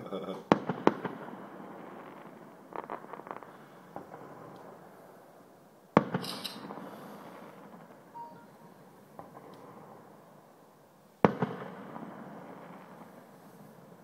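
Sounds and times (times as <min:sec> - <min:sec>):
fireworks crackling pops: 0:00.4 - 0:04.9, 0:06.0 - 0:08.1, 0:09.1 - 0:10.0, 0:11.2 - 0:14.0
high hiss and crackle: 0:06.0 - 0:09.9.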